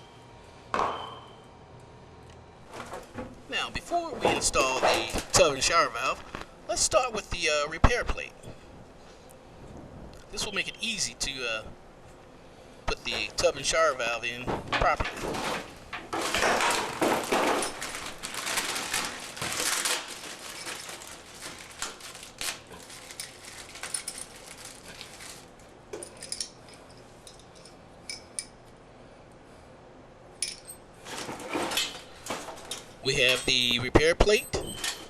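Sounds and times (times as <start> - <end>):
rustling and scraping: 2.6 - 6.6, 14.4 - 27.1, 31.0 - 32.9
small metal parts clinking: 22.8 - 25.4, 26.0 - 28.5.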